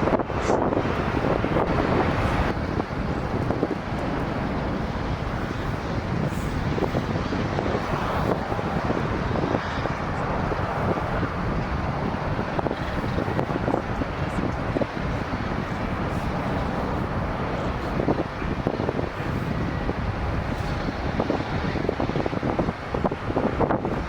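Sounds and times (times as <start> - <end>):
jet engines rumbling: 0.0 - 24.0
wind buffeting microphone: 0.0 - 24.0.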